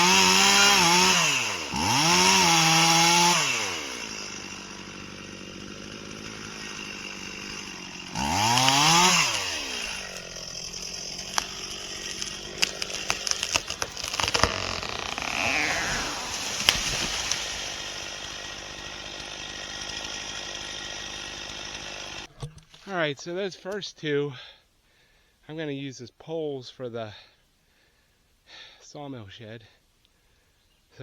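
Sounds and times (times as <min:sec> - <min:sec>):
chainsaw running and idling: 0:00.0 - 0:22.4
wood cracking and snapping: 0:00.0 - 0:22.9.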